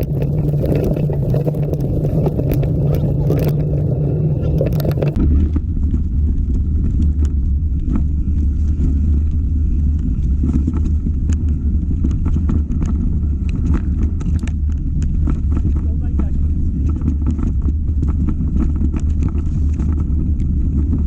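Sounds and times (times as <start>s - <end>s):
clicks and rattles: 0.0s - 5.2s
low rumble: 0.0s - 21.0s.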